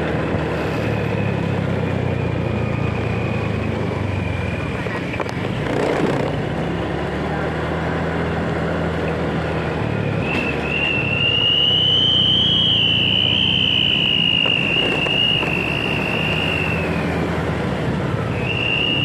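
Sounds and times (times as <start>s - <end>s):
motorcycle engine and road noise: 0.0s - 19.0s
loud high whine: 9.7s - 19.0s.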